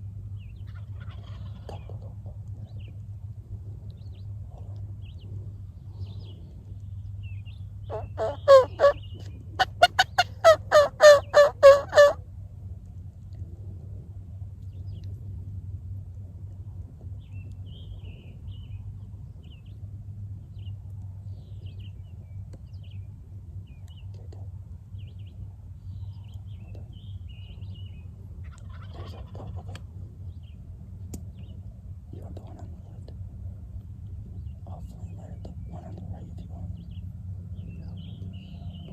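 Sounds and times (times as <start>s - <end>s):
songbirds chirping: 0.0s - 38.9s
turkey yelping: 0.7s - 1.7s, 7.9s - 9.0s, 9.6s - 12.2s, 28.4s - 29.6s.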